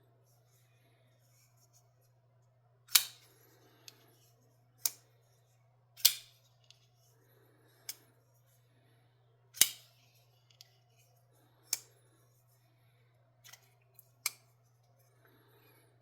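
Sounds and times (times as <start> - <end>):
pocket knife metallic clicks: 2.9 - 3.3, 6.0 - 6.3, 9.6 - 9.9.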